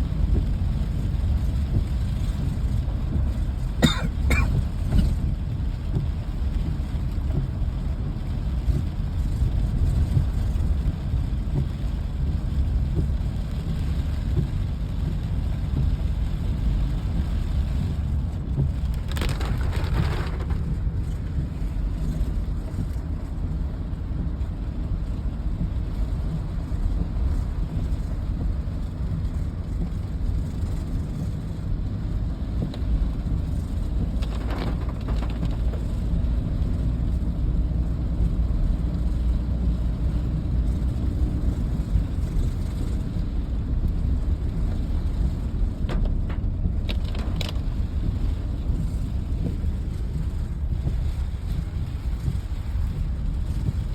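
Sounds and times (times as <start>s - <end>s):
rain noise: 0.0s - 53.9s
low rumble: 15.1s - 53.9s.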